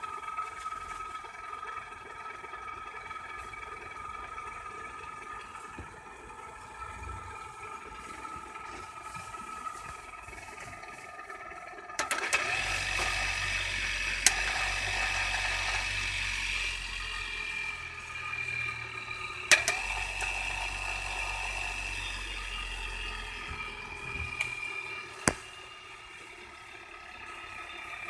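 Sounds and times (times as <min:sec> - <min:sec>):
electric motor hum and whine: 0:12.0 - 0:28.0
sharp clicks: 0:25.2 - 0:25.5
switch click: 0:25.2 - 0:25.5.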